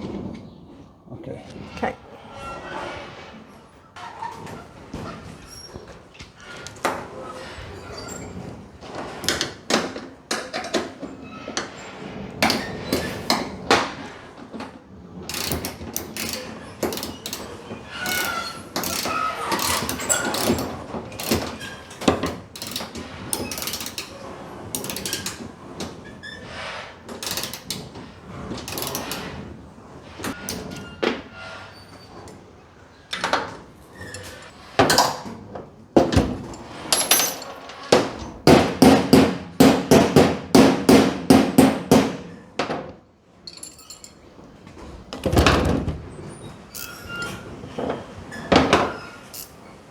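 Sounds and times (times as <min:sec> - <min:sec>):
hand tools and metal parts knocking: 0:15.3 - 0:24.1, 0:36.0 - 0:45.7, 0:46.7 - 0:49.7.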